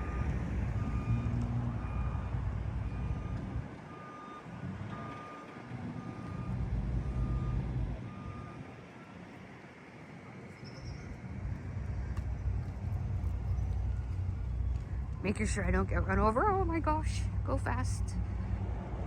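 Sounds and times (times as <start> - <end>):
vehicle reversing alarm beeping: 0.0 - 9.3, 13.0 - 18.2
vehicle engines rumbling: 0.0 - 19.0.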